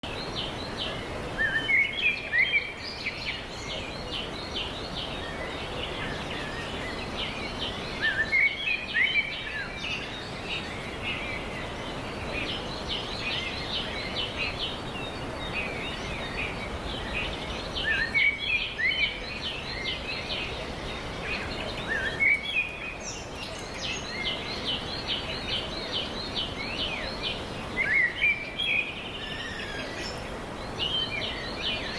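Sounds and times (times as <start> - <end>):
background hiss: 0.0 - 31.9
small birds chirping: 0.0 - 31.9.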